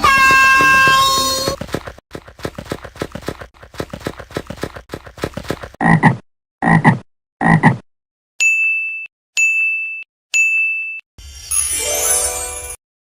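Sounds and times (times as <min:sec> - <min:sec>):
bright dings: 0:08.4 - 0:12.8.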